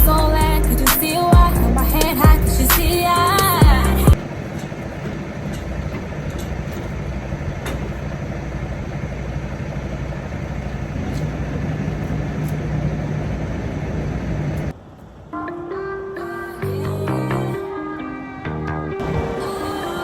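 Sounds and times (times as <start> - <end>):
truck engine running: 0.0 - 15.4.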